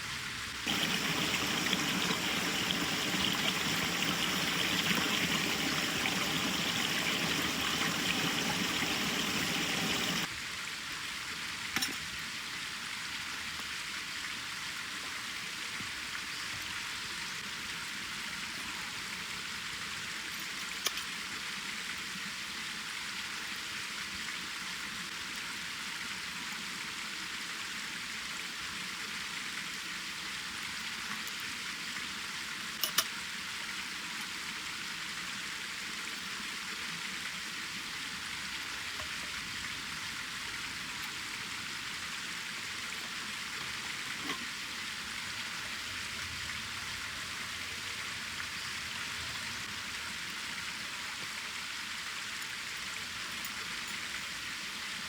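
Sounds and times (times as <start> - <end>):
wood fire hissing: 0.6 - 10.3
fire crackling pops: 0.7 - 10.3.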